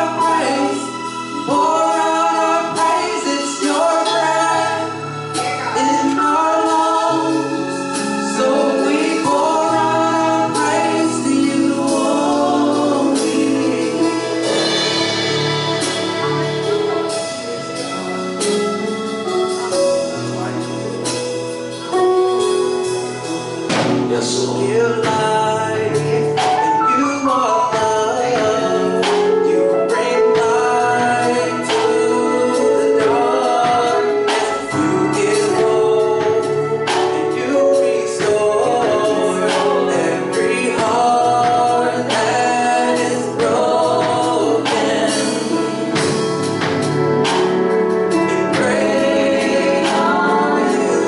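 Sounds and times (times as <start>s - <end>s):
gospel singing over instruments: 0.0s - 51.0s
percussion hits: 11.9s - 20.4s, 23.3s - 24.4s, 43.0s - 51.0s.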